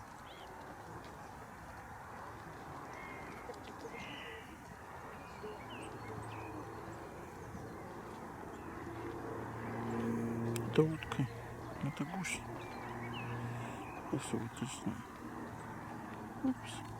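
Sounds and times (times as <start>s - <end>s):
low steady hum: 3.9s - 16.9s
short bird calls: 9.9s - 15.2s.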